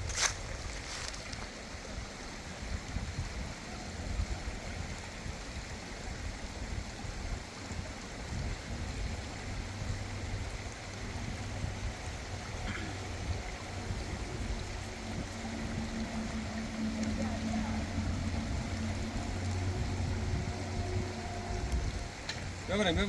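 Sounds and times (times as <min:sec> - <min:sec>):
low rumble: 0:08.3 - 0:22.7.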